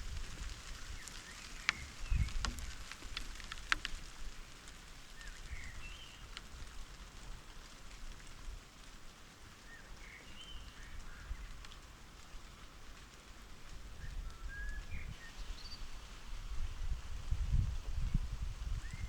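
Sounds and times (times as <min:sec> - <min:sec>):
wind rumble on microphone: 0:00.0 - 0:04.5, 0:10.4 - 0:19.0
light rain pattering: 0:00.0 - 0:19.0.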